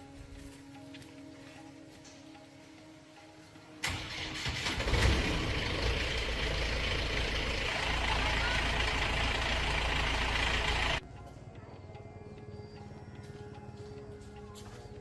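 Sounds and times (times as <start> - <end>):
motor running with deep rumble: 4.8 - 11.0.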